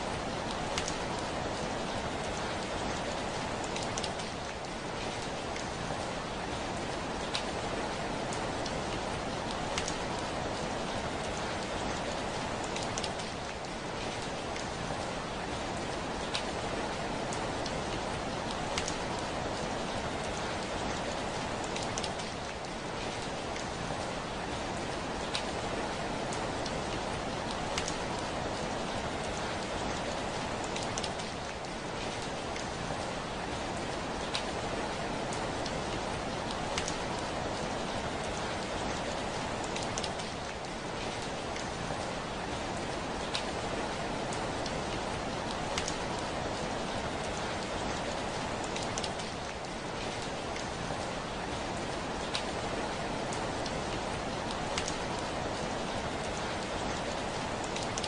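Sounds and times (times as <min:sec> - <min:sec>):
heavy rain on window: 0:00.0 - 0:58.0
raindrops ticking: 0:00.4 - 0:01.4, 0:08.3 - 0:10.5, 0:17.2 - 0:22.7, 0:26.2 - 0:32.7, 0:35.2 - 0:41.7, 0:43.2 - 0:50.7, 0:53.2 - 0:58.0.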